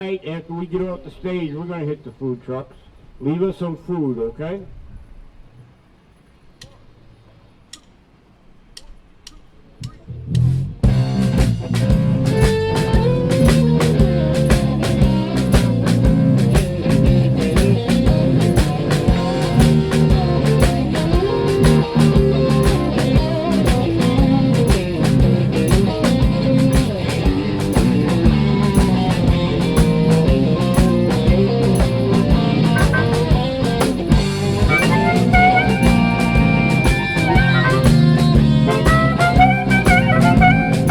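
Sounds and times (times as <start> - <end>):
live blues band playing: 10.9 - 40.9.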